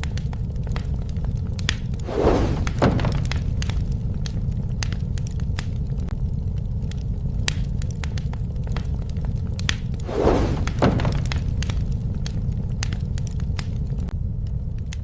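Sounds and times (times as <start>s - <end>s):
campfire crackling: 0.0s - 15.0s
loud crunch and crack: 0.0s - 15.0s.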